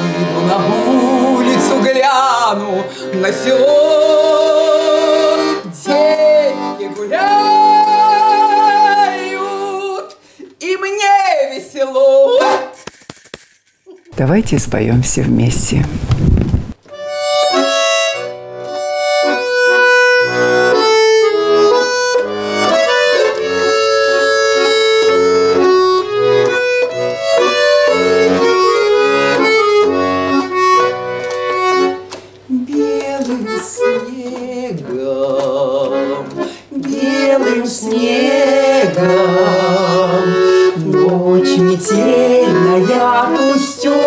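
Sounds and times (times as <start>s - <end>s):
accordion playing folk song: 0.0s - 10.6s, 12.3s - 12.8s, 16.8s - 44.0s
person singing: 0.0s - 12.6s, 32.5s - 44.0s.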